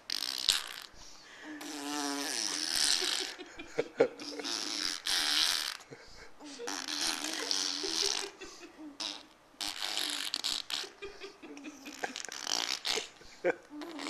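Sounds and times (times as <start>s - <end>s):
baby blowing raspberries: 0.0s - 3.4s, 4.2s - 5.9s, 6.6s - 8.3s, 9.0s - 11.0s, 11.9s - 14.0s.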